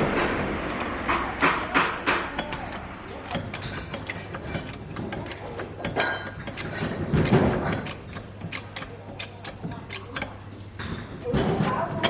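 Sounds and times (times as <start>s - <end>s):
sharp metal clank: 0.0s - 2.7s
small metallic clicks: 0.1s - 11.2s.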